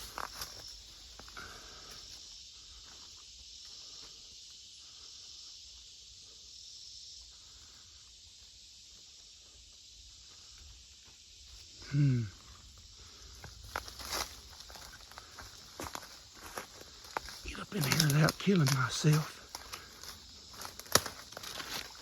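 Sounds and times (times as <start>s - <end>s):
footsteps rustling through brush: 0.0s - 4.2s, 13.2s - 22.0s
insects droning: 0.0s - 22.0s
twigs snapping: 17.0s - 22.0s.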